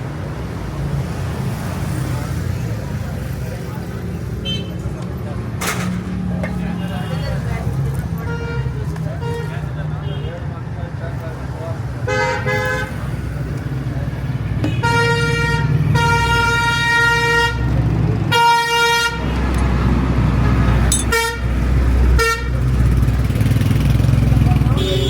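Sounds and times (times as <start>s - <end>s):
vehicle horn honking: 14.6s - 17.6s, 18.3s - 19.3s, 20.4s - 21.5s, 22.2s - 22.6s, 24.7s - 25.0s.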